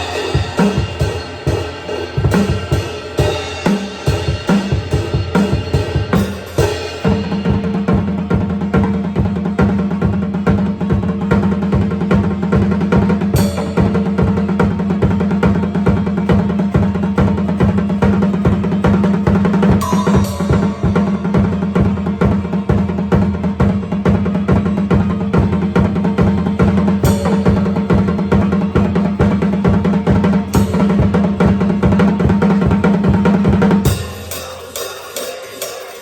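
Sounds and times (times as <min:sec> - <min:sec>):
metal song music: 0:00.0 - 0:04.6, 0:19.6 - 0:22.7
cymbal crashes: 0:00.0 - 0:07.8, 0:19.6 - 0:23.1, 0:27.0 - 0:36.0
fast drum kit playing: 0:00.0 - 0:36.0.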